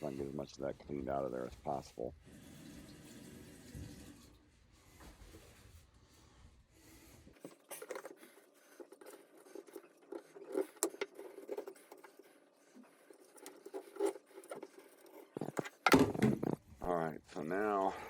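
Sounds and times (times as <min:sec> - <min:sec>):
plastic tube scraping in drain: 0:00.0 - 0:04.4, 0:07.3 - 0:16.8.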